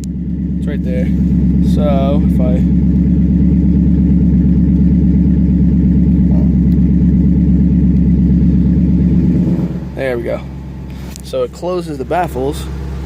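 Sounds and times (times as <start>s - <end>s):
car engine idling loudly: 0.0s - 13.0s.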